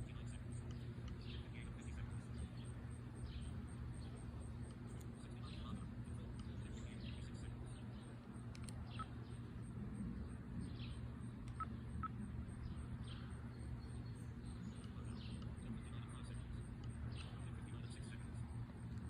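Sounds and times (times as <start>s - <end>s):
birds chirping: 0.0s - 19.0s
steady low hum: 0.0s - 19.0s.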